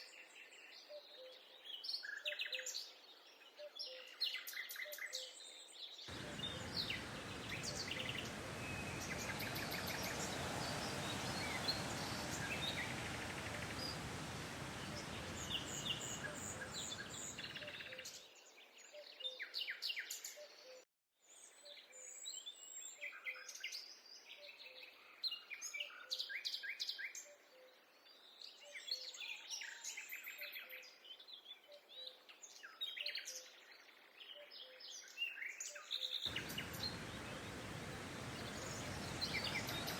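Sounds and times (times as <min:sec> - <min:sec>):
small birds chirping and singing: 0:00.0 - 0:20.8, 0:27.9 - 0:39.9
steady rushing noise: 0:06.1 - 0:17.6, 0:36.3 - 0:39.9.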